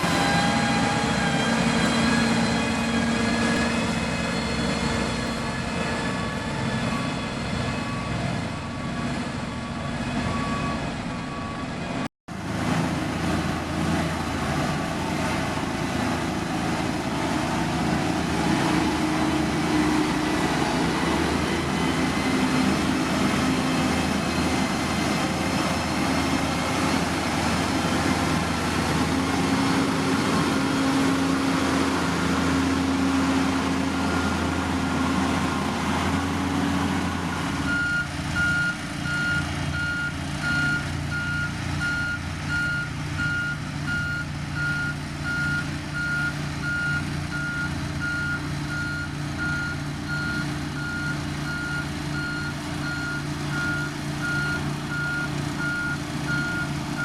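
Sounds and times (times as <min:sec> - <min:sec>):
reversing alarm beeping: 0:00.0 - 0:08.4, 0:09.6 - 0:12.1, 0:37.1 - 0:57.0
diesel machinery running: 0:00.0 - 0:57.0.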